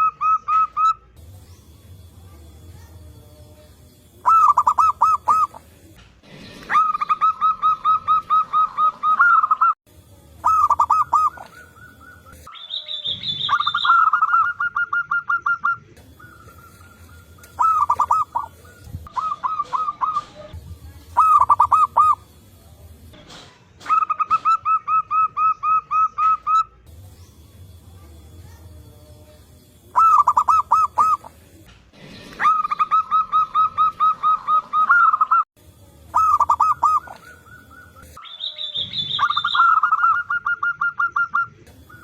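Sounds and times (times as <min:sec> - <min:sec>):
doves cooing: 0:04.2 - 0:09.8, 0:10.4 - 0:22.4, 0:29.7 - 0:31.6, 0:32.2 - 0:35.4, 0:36.1 - 0:38.2
high thin bird call: 0:10.4 - 0:20.5, 0:36.1 - 0:42.0.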